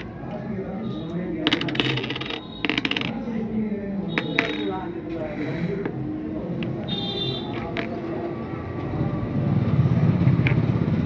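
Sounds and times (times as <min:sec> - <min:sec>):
small metal objects clinking: 0:01.4 - 0:03.2.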